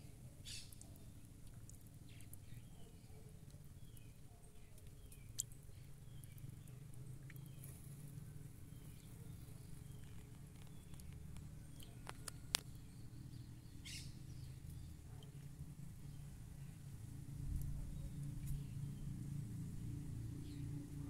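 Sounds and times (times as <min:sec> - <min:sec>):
steady low hum: 0:00.0 - 0:21.0
bird chirps: 0:00.4 - 0:01.0, 0:08.7 - 0:15.0.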